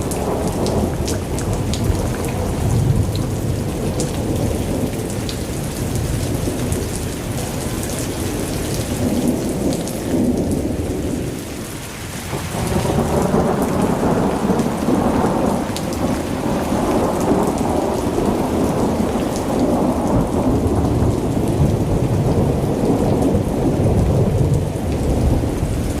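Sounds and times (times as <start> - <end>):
continuous thunder rumble: 0.0 - 26.0
heavy rain rushing: 0.0 - 26.0.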